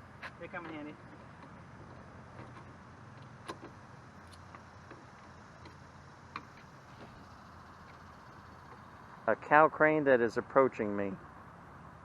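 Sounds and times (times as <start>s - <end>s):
low vehicle engine hum: 0.0s - 12.0s.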